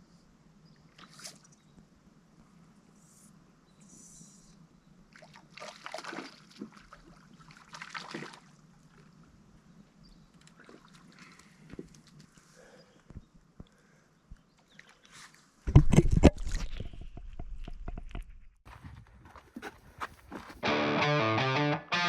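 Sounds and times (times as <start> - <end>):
water splashing: 5.1 - 9.3, 10.4 - 12.4
water trickling and sloshing: 5.1 - 12.6, 14.6 - 17.4.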